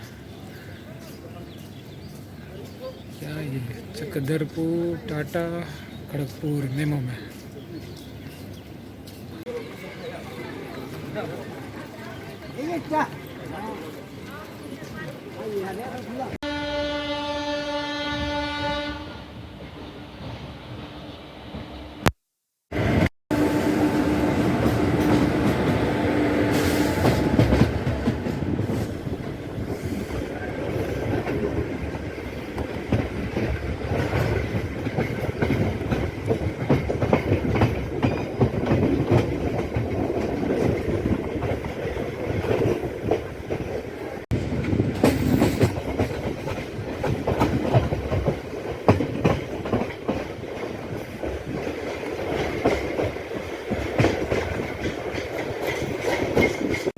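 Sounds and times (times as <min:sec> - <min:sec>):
wheels clattering over rail joints: 0:26.5 - 0:56.9.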